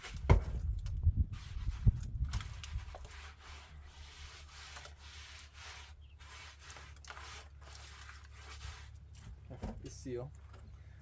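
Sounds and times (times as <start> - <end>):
short scraping strokes: 1.3 - 9.0.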